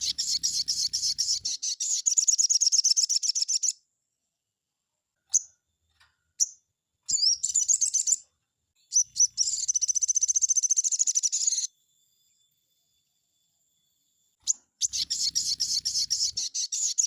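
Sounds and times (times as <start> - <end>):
bird singing trills: 0.0 - 3.8, 6.4 - 11.8, 14.4 - 17.0.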